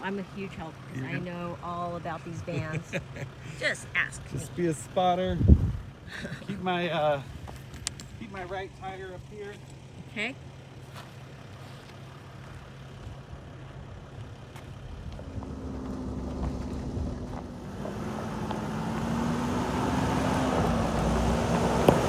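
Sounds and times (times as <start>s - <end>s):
van diesel engine under load: 0.0s - 22.0s
van rumbling over rock: 0.0s - 22.0s.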